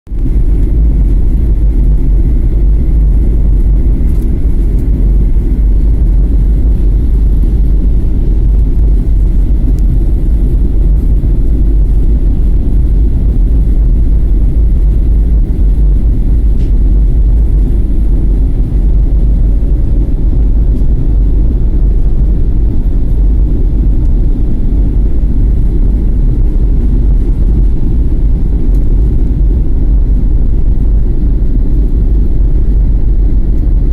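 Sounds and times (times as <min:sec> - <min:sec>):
airliner deep rumble: 0:00.0 - 0:33.9.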